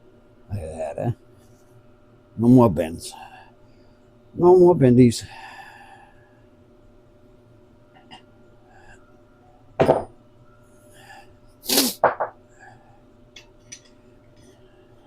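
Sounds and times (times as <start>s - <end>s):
man sneezing: 11.6s - 12.0s.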